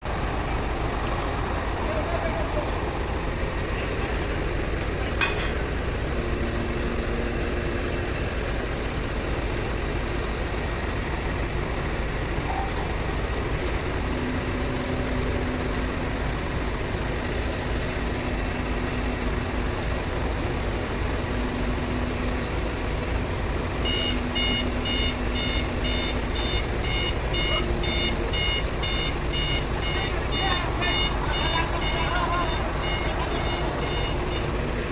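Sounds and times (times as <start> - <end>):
diesel engine running: 0.0 - 34.9
electronic warning beeper: 23.8 - 34.8.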